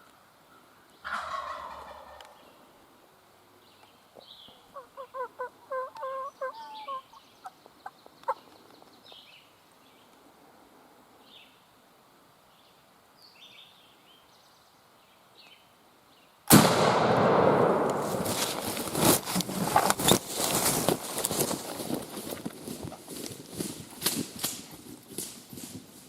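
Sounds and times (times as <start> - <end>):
faint songbirds chirping: 0.0 - 16.4
turkey clicks: 0.8 - 2.5, 3.8 - 9.3
turkey gobbling: 1.0 - 2.4, 4.6 - 8.4
rustling handling noise: 17.9 - 26.0.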